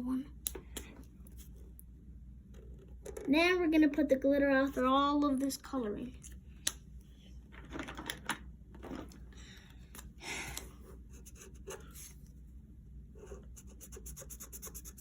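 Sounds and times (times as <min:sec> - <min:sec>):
pencil strokes on paper: 0:13.2 - 0:15.0.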